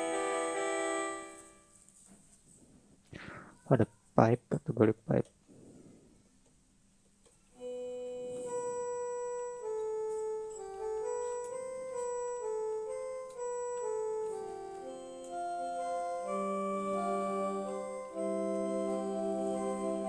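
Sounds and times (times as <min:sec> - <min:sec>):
electronic keyboard flute melody: 0:00.0 - 0:01.7, 0:07.6 - 0:20.0.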